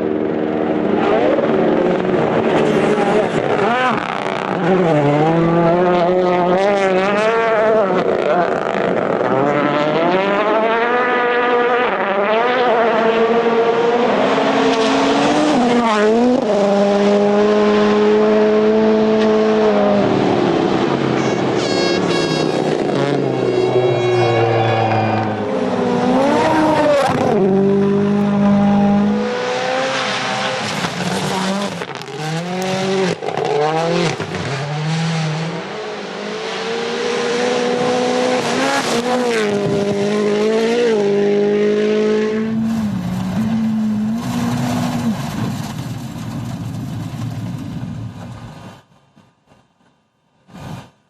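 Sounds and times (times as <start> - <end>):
rally car engine revving: 0.0 - 48.4.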